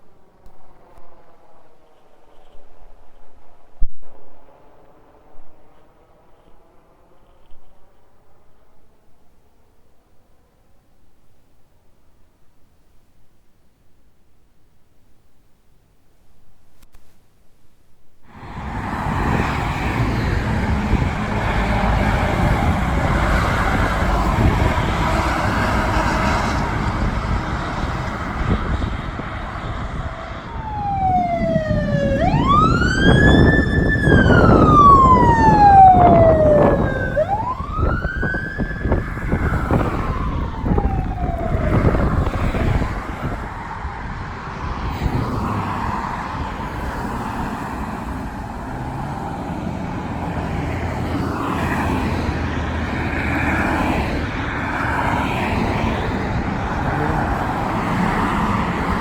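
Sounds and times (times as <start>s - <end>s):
road and engine noise: 0.0s - 11.6s, 18.3s - 59.0s
emergency vehicle siren wailing: 18.4s - 59.0s.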